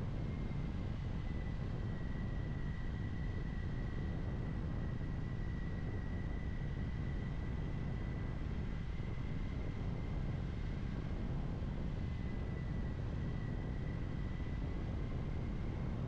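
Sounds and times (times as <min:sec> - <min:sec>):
thin steady high whine: 0:00.0 - 0:16.0
wind rushing over microphone: 0:00.0 - 0:16.0.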